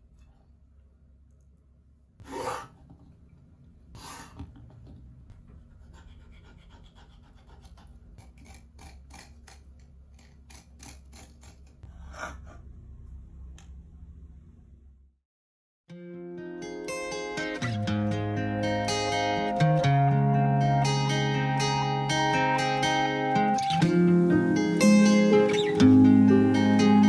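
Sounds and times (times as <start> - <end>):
low steady hum: 0.0 - 15.1.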